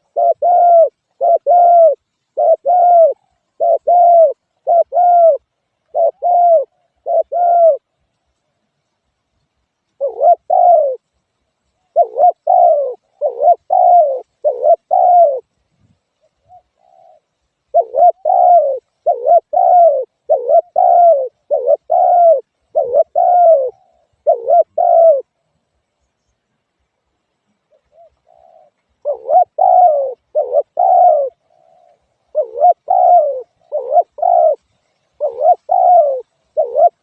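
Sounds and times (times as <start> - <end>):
dove cooing: 0.0 - 8.0, 9.9 - 11.1, 11.8 - 15.6, 16.2 - 25.4, 27.6 - 37.0.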